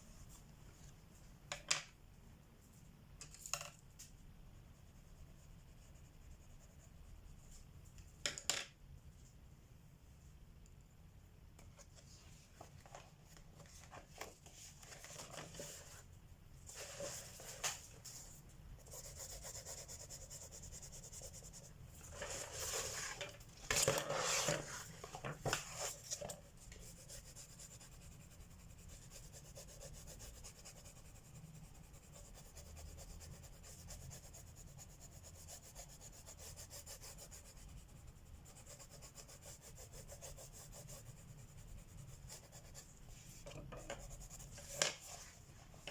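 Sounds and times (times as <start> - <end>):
colored pencil scratching on paper: 4.7 - 7.6, 16.7 - 23.2, 25.7 - 45.4
rubbing and scraping on paper: 13.6 - 45.9.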